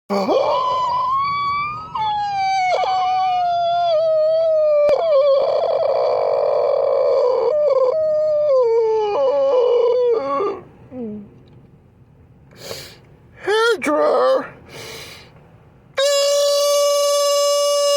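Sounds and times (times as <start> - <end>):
person crying in a high wail: 0.1 - 6.1.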